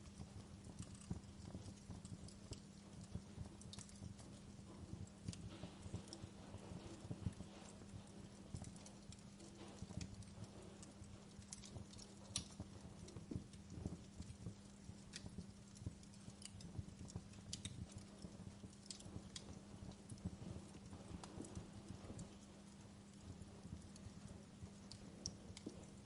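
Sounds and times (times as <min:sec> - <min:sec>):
soft steady hiss and hum: 0:00.0 - 0:26.0
wood fire crackling: 0:00.0 - 0:26.0.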